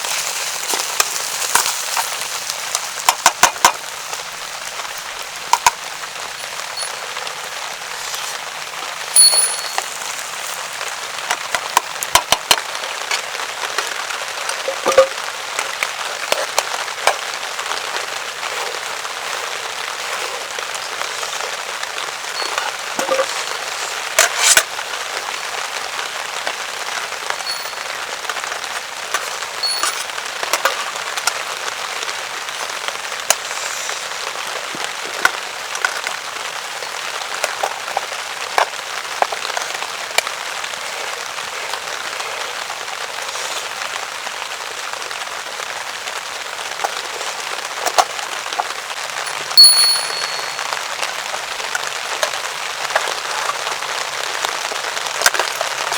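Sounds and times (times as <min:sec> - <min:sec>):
rain pattering on a tarp: 0:00.0 - 0:49.6, 0:50.6 - 0:55.9
short ringing clink: 0:09.2 - 0:10.0, 0:27.5 - 0:27.8, 0:29.6 - 0:30.0, 0:49.3 - 0:50.8.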